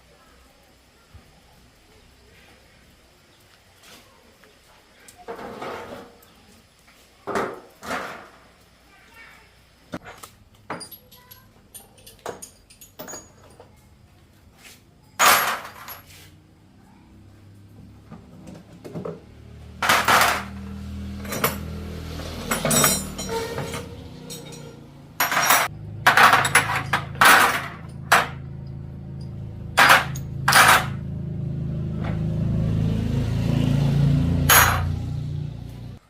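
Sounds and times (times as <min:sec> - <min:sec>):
metal tools clanking on metal: 0:10.0 - 0:13.8, 0:15.1 - 0:16.2, 0:19.8 - 0:31.0, 0:34.5 - 0:35.0.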